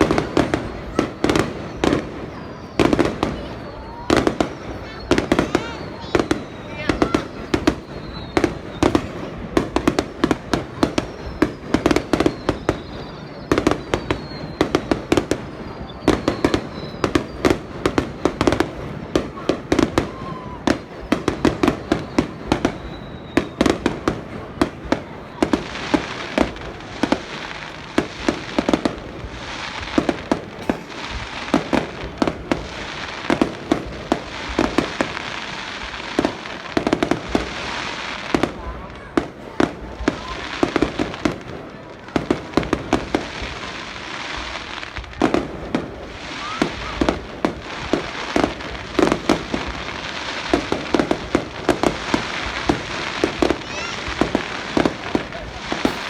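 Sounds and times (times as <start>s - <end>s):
firework shells bursting: 0.0s - 37.4s, 49.0s - 56.0s
falling firework whistles: 0.0s - 56.0s
firework crackling: 0.0s - 56.0s.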